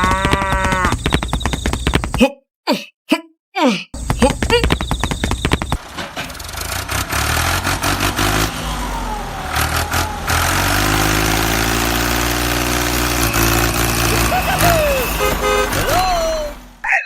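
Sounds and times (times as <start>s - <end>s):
engine running: 4.8s - 16.8s.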